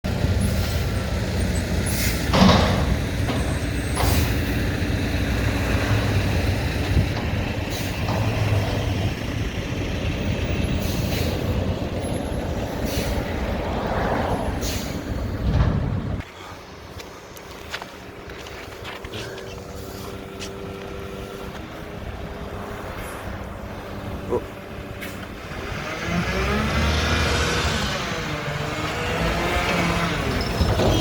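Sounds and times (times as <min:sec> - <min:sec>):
diesel engine rumbling: 0:00.0 - 0:31.0
air brake hisses: 0:01.8 - 0:02.3, 0:04.0 - 0:04.6, 0:12.8 - 0:13.3, 0:14.6 - 0:15.1.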